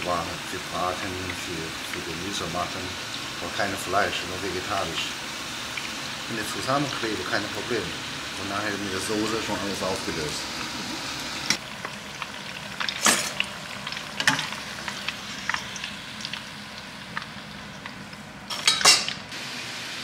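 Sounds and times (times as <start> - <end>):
aubergine sizzling in hot oil: 0.0 - 20.0.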